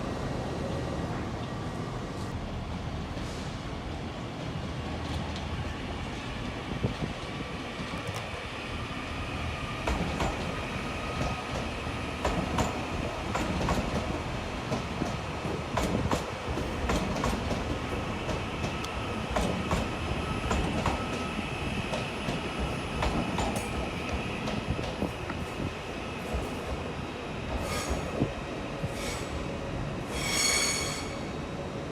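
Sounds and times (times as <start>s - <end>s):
train low rumble: 0.0s - 31.9s
train wheels clicking over rail joints: 11.2s - 21.2s, 21.9s - 25.5s
high wheel squeal: 30.1s - 31.3s.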